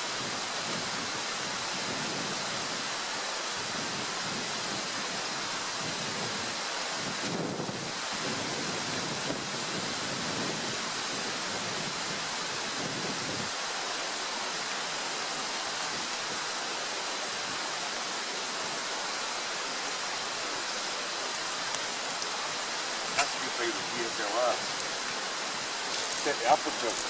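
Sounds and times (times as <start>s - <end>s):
bacon sizzling in a pan: 25.8s - 27.0s.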